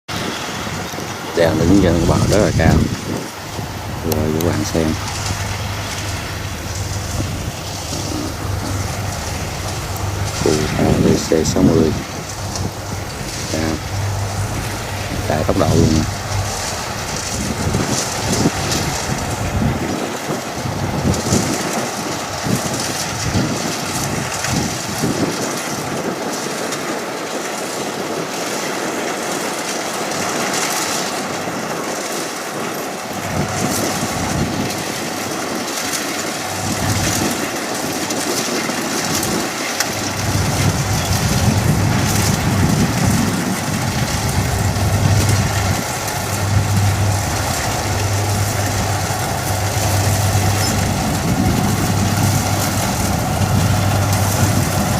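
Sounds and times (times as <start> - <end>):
combine harvester running: 0.1 - 54.9.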